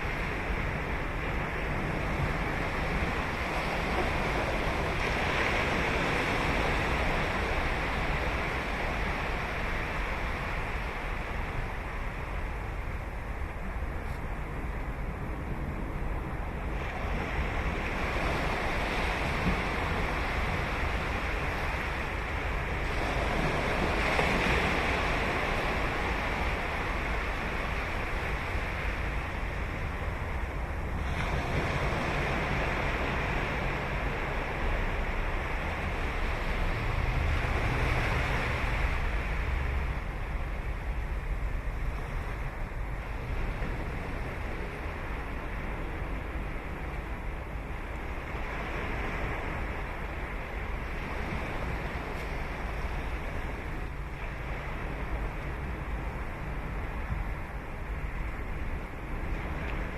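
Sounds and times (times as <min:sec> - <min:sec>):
wind rumble on microphone: 0:00.0 - 0:59.9
surf breaking on beach: 0:22.8 - 0:47.3.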